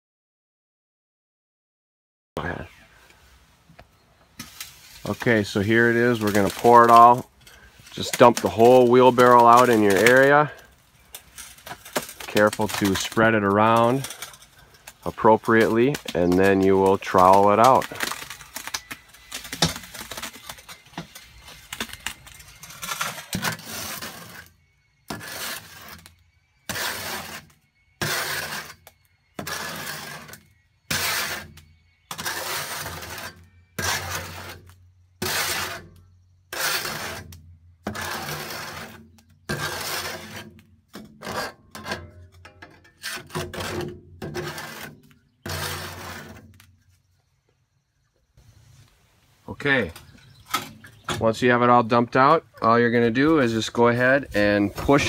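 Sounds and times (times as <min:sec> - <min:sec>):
scraping mortar from metal tray: 0:04.3 - 0:46.7, 0:53.0 - 0:55.0
wet mortar sliding from wheelbarrow: 0:04.4 - 0:42.1, 0:43.0 - 0:46.5, 0:53.5 - 0:55.0.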